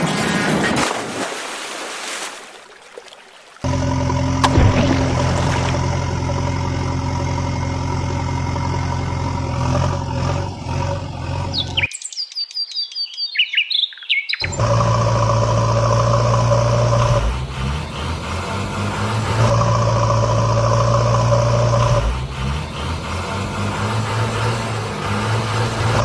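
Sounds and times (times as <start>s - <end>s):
steady engine hum: 3.6s - 11.9s, 14.4s - 26.0s
birds chirping: 11.3s - 14.7s.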